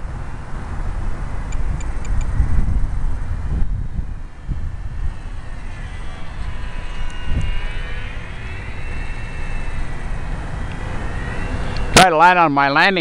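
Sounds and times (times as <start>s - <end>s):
wind rumbling on microphone: 0.0s - 13.0s
model airplane motor whine: 3.2s - 12.2s.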